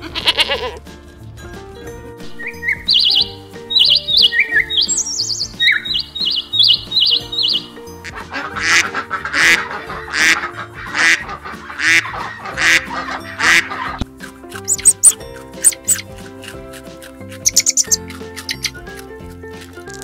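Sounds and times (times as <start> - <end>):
bird trilled chirps: 2.3 - 7.8, 14.7 - 16.0, 17.4 - 18.7
geese honking: 5.6 - 14.0.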